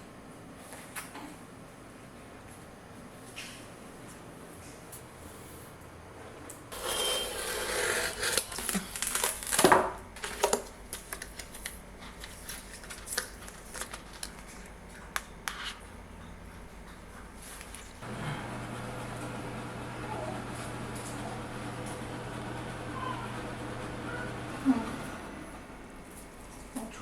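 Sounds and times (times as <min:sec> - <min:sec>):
crinkling and rustling: 0:08.3 - 0:15.9.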